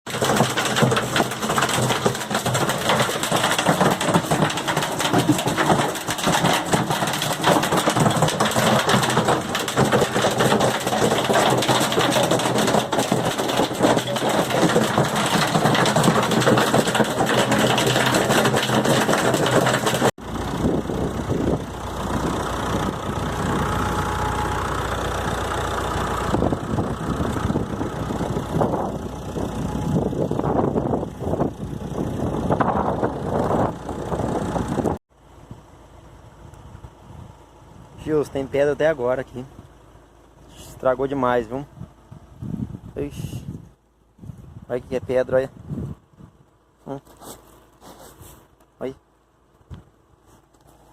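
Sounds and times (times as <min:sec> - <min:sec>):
hailstones clattering: 0:00.1 - 0:20.2
low rushing with deep rumble: 0:20.2 - 0:24.1, 0:26.2 - 0:35.0.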